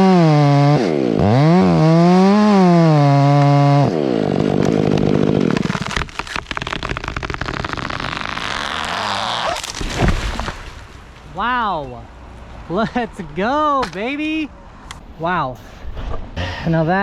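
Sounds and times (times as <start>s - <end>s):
chainsaw at full throttle: 0.0s - 9.9s
tree trunk cracking and splitting: 1.0s - 11.3s
heavy crash of falling tree: 4.6s - 11.3s
branches rushing through air: 7.3s - 11.3s.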